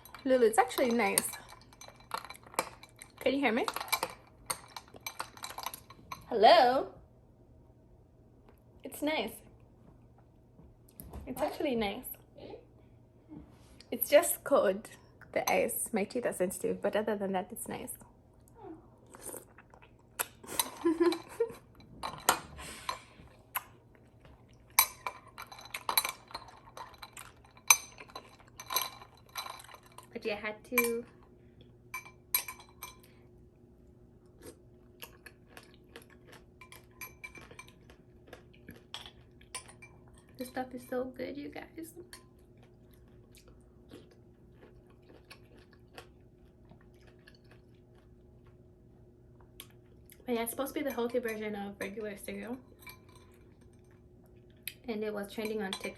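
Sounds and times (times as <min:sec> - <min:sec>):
spoon clinking in a bowl: 0:00.0 - 0:06.3, 0:24.8 - 0:30.1, 0:30.8 - 0:31.1, 0:31.9 - 0:33.1, 0:50.7 - 0:54.0, 0:55.3 - 0:55.9
faint chewing of cereal: 0:18.3 - 0:30.2, 0:31.0 - 0:40.7, 0:42.0 - 0:54.9.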